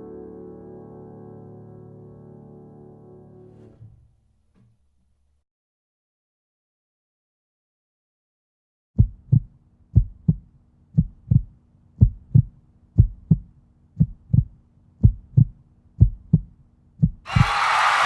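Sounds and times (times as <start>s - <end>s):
heartbeat thumps: 9.0s - 17.6s.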